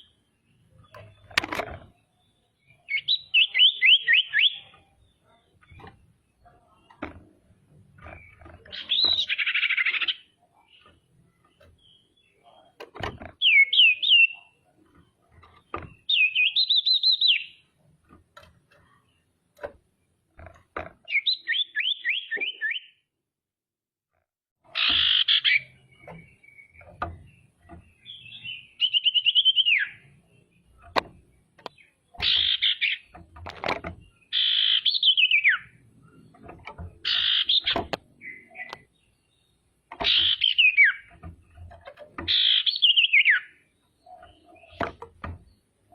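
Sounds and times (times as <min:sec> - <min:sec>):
bird singing trills and whistles: 0:02.0 - 0:05.9, 0:08.0 - 0:14.7, 0:15.5 - 0:17.7, 0:21.0 - 0:23.1, 0:24.7 - 0:30.8, 0:31.6 - 0:33.2, 0:34.0 - 0:36.4, 0:37.0 - 0:45.6.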